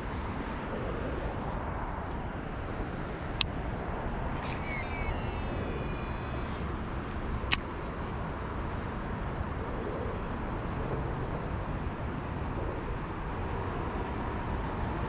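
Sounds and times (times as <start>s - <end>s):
outdoor background noise: 0.0s - 15.0s
faint high whistling tone: 4.4s - 6.7s.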